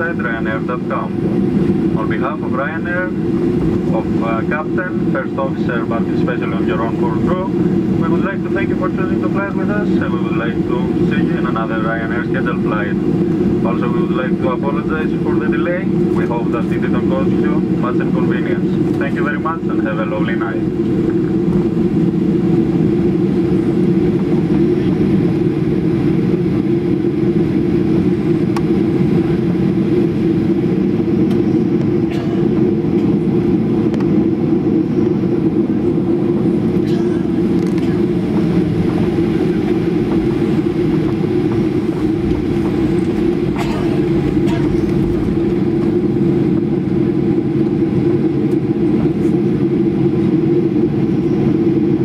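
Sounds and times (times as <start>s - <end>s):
air conditioning hum: 0.0s - 52.0s
aircraft engines idling: 0.0s - 52.0s.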